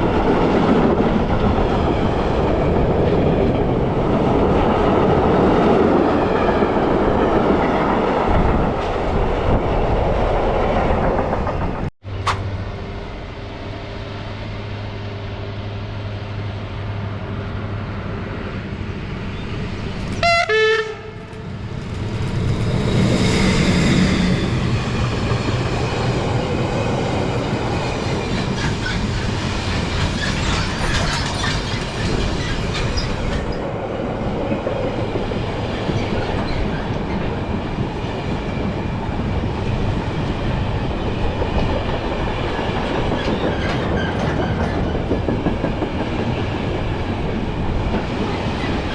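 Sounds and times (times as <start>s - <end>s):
train passing: 0.0s - 48.9s
train horn: 20.2s - 21.2s.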